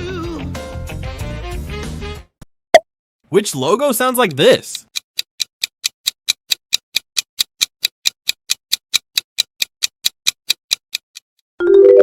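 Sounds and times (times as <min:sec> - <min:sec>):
timer ticking: 0:04.0 - 0:11.4.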